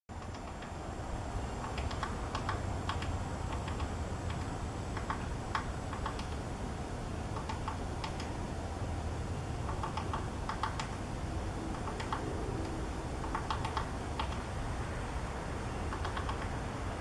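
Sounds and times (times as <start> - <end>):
woodpecker tapping on wood: 1.6 - 6.4, 9.7 - 10.9
low rumble: 10.3 - 15.5.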